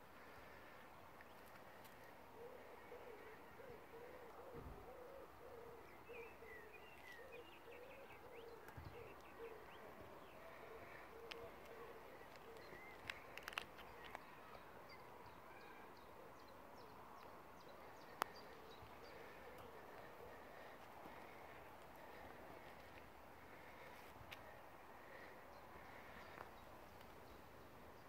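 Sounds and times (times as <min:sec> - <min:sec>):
bird hooting: 0:02.4 - 0:13.3
small birds chirping: 0:05.2 - 0:28.0.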